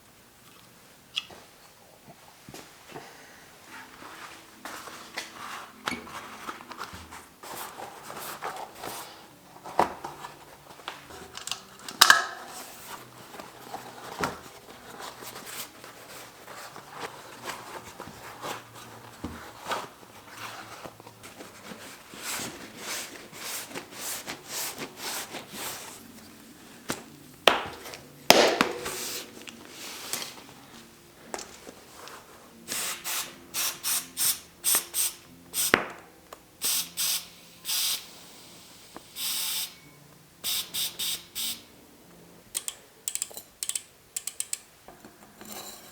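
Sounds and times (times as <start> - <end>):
tools clicking and knocking on bicycle: 42.5 - 45.8.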